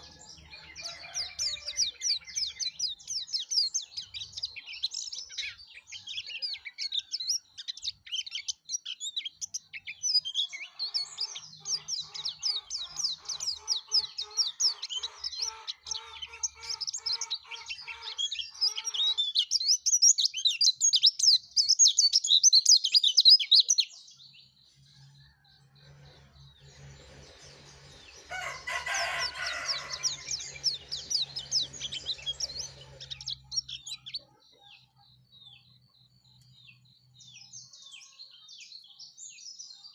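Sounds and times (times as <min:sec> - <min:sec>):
bird high-pitched twitter: 0:00.0 - 0:24.6.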